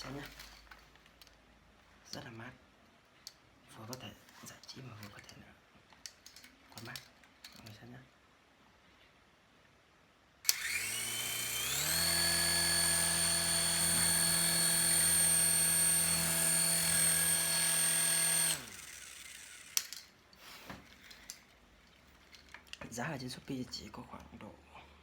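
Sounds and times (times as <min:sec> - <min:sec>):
toy helicopter motors whining: 0:10.5 - 0:20.1.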